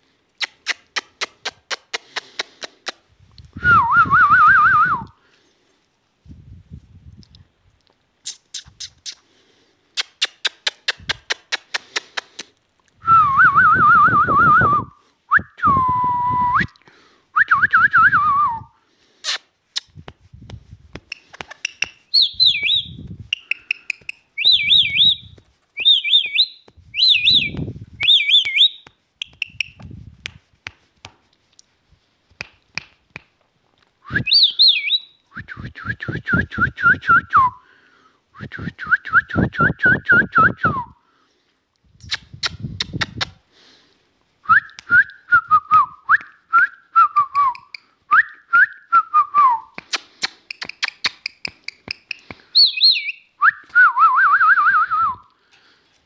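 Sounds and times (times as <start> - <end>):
parrot clicking: 21.0 - 22.0, 49.8 - 52.5
parrot whistling: 22.1 - 29.8, 34.2 - 35.1, 51.4 - 53.6.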